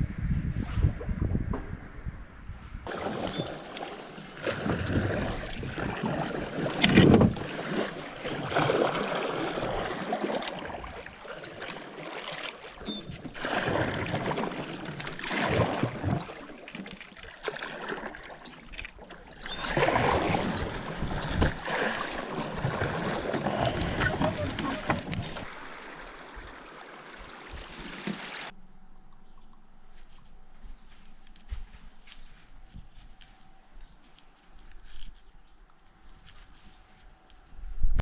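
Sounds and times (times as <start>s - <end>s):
wind rumbling on microphone: 0.0s - 3.6s, 19.3s - 26.6s, 37.4s - 38.0s
canoe paddle strokes in water: 2.9s - 28.6s.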